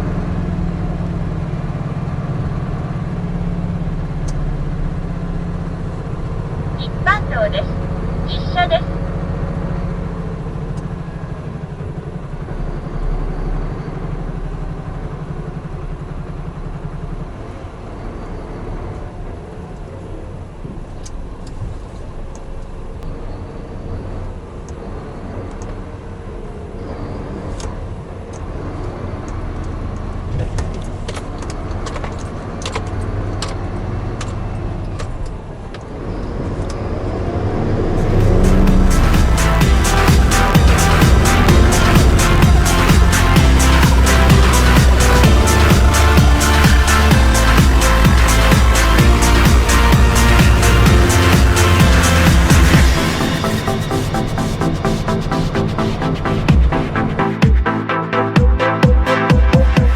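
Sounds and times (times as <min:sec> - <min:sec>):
diesel truck engine running: 0:37.9 - 0:57.7.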